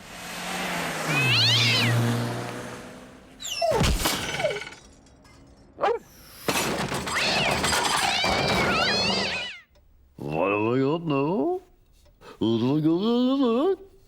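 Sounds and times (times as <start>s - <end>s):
cartoon shattering crash: 3.6s - 5.0s, 6.4s - 9.5s
noisy clatter: 6.5s - 9.1s.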